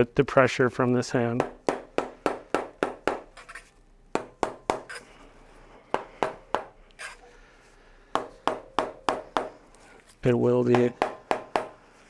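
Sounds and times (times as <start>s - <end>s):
mallet tapping metal cap: 10.7s - 11.8s.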